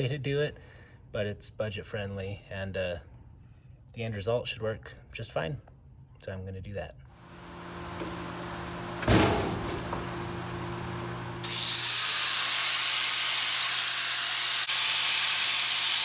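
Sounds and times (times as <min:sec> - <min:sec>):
low hum: 0:07.2 - 0:14.6
power tool cutting steel: 0:07.3 - 0:16.0.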